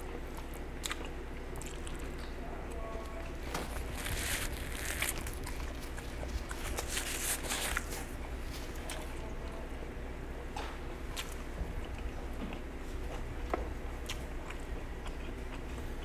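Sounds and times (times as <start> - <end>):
chewing: 0.1 - 9.6, 10.6 - 16.0
paper napkin rustling: 3.4 - 8.8.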